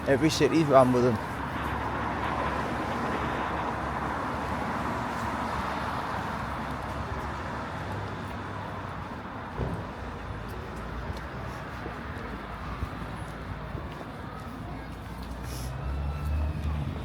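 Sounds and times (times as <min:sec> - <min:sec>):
brief thump: 0:09.6 - 0:09.9.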